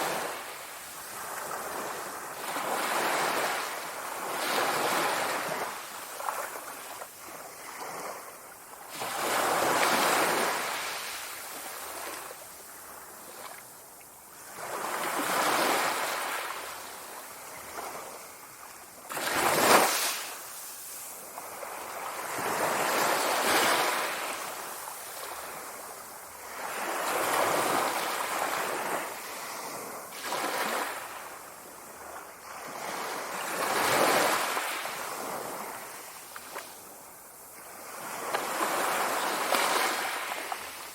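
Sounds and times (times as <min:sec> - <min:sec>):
sea waves breaking ashore: 0:14.3 - 0:40.9.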